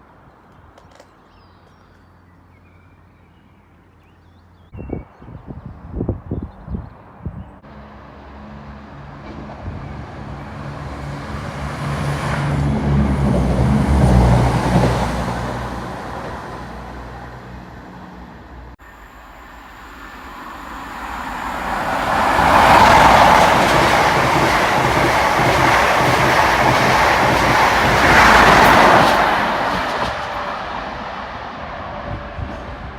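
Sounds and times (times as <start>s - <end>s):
diesel train engine hum: 7.1s - 32.9s
train wheel and rail noise: 7.6s - 32.9s.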